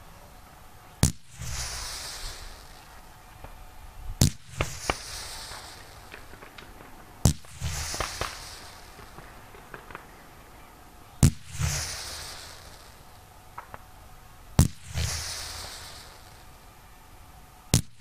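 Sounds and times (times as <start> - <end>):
firework hissing tail: 0.7 - 18.0
firework bangs: 1.0 - 16.8
faint pops: 4.2 - 10.6, 11.2 - 13.9.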